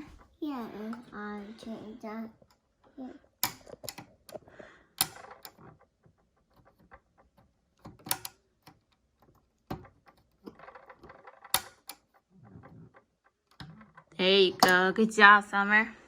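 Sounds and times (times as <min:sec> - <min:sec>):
plastic toy pieces clicking: 0:05.0 - 0:14.8.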